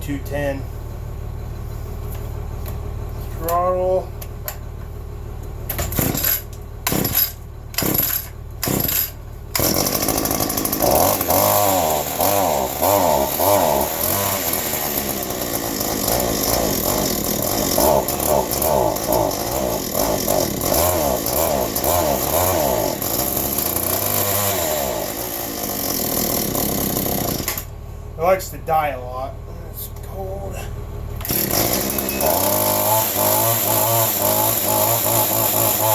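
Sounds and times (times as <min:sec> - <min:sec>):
two-stroke engine running: 0:01.2 - 0:28.2, 0:30.2 - 0:35.9
starter cord pulls: 0:05.7 - 0:10.0.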